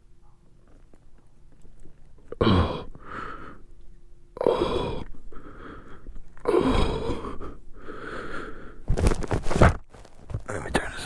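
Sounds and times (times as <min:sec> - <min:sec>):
soft in-breath: 0:02.8 - 0:03.8, 0:04.4 - 0:09.0
man sighing heavily: 0:05.9 - 0:08.1.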